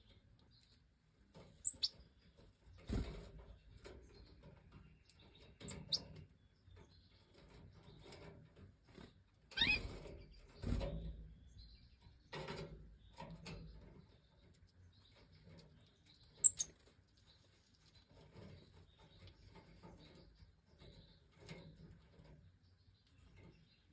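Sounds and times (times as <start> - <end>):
bird chirps: 1.6 - 3.0, 9.5 - 12.3, 13.0 - 21.3.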